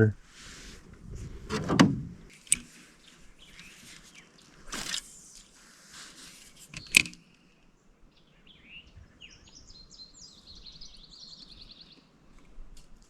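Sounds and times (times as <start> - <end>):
songbirds chirping: 0.0 - 13.0
sharp click: 1.5 - 2.7, 6.7 - 7.2.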